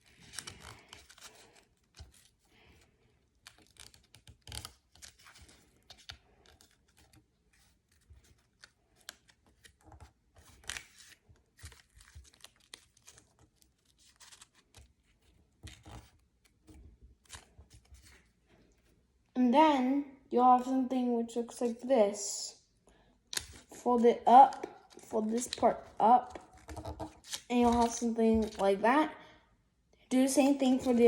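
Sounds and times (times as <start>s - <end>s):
paper being folded and creased: 0.0s - 18.9s, 23.3s - 28.8s, 30.6s - 31.0s.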